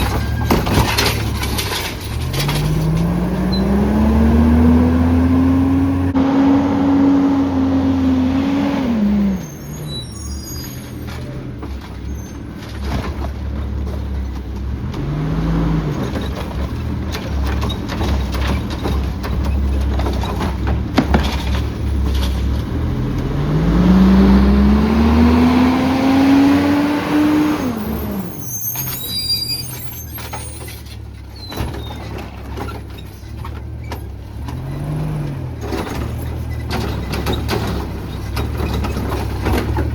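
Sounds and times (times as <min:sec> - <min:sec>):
squeaks: 0:00.0 - 0:03.9, 0:09.1 - 0:12.8, 0:27.3 - 0:34.8, 0:35.7 - 0:39.9
knocks and clatter: 0:00.0 - 0:04.0, 0:10.8 - 0:15.2, 0:15.8 - 0:23.4, 0:30.1 - 0:39.9
garbage truck engine revving: 0:00.0 - 0:39.9.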